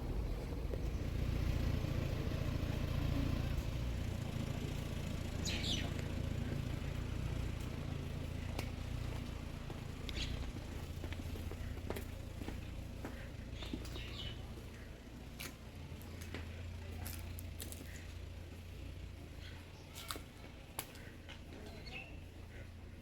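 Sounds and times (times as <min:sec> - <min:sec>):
low steady rumble: 0:00.0 - 0:23.0
bird chirping: 0:05.2 - 0:06.9, 0:09.9 - 0:11.7, 0:13.2 - 0:15.0, 0:21.0 - 0:22.7.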